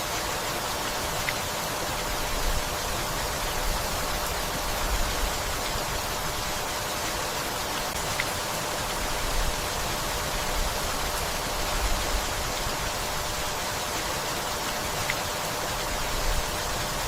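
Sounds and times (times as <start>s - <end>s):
steady rain hiss: 0.0s - 17.0s
faint drip ticks: 8.0s - 8.9s.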